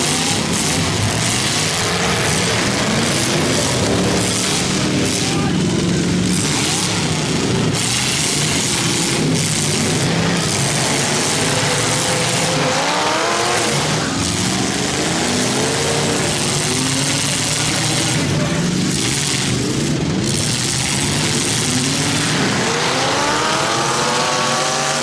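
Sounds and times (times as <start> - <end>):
car engines revving hard: 0.0 - 25.0.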